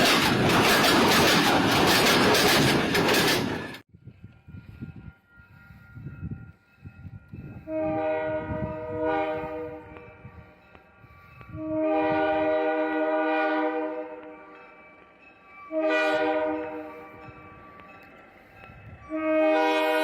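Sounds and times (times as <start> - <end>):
low train rumbling: 0.0 - 20.0
train air horn blasts: 7.5 - 14.6, 15.7 - 17.2, 19.0 - 20.0.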